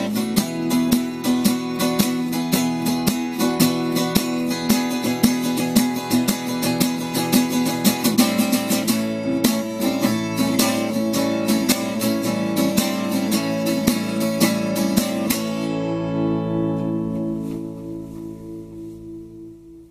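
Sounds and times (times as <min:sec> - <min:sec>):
acoustic guitar strumming: 0:00.0 - 0:19.9.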